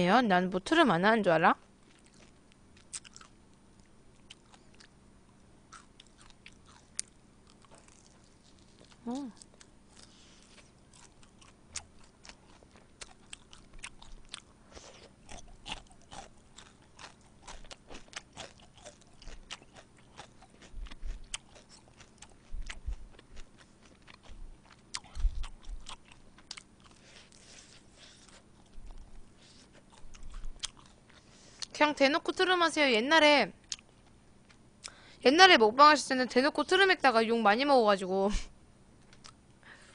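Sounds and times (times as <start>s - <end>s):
crunchy chewing of fried chicken: 1.8s - 31.8s.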